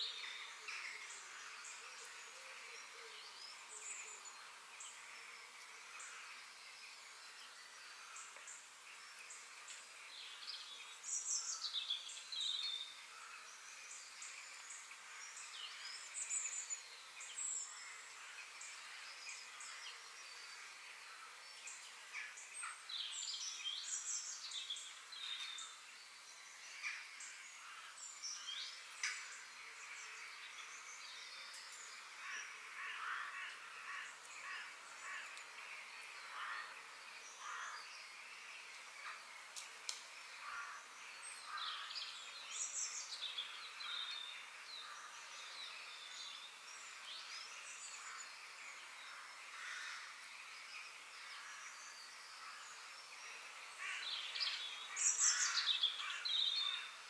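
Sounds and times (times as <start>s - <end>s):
high background hiss: 0.0s - 57.0s
birds singing and chirping: 40.4s - 57.0s.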